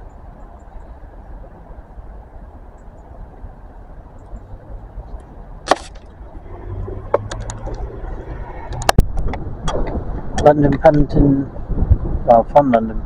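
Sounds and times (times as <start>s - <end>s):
train rumbling: 3.7s - 11.0s
sharp clicks and knocks: 7.1s - 7.8s.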